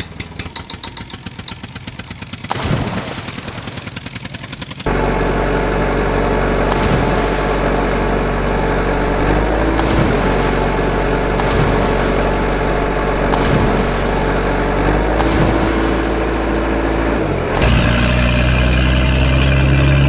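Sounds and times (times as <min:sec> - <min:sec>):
diesel tractor engine chugging: 0:00.0 - 0:01.1, 0:08.5 - 0:14.3.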